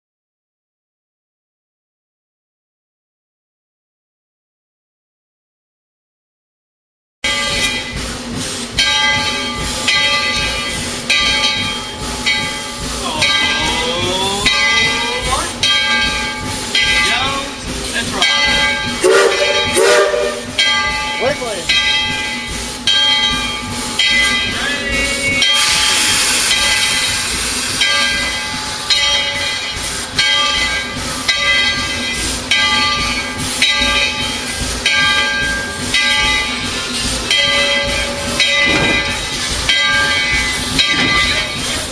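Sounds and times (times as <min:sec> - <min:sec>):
steam locomotive exhaust chuffs: 0:07.2 - 0:41.9
rush of steam: 0:07.4 - 0:41.9
steady steam hiss: 0:07.8 - 0:21.7, 0:22.3 - 0:41.9.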